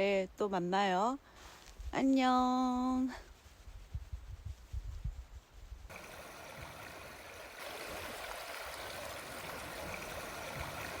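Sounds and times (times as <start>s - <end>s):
stream rushing: 5.9s - 11.0s.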